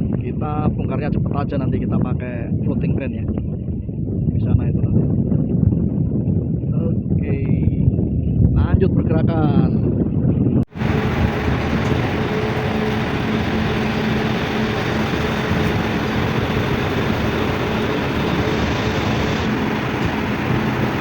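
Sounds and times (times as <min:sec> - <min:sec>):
tugboat engines running: 0:10.7 - 0:21.0.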